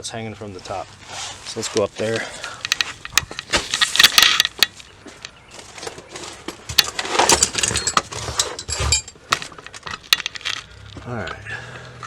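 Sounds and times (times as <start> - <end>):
tools and parts clicking and knocking: 2.4 - 11.0.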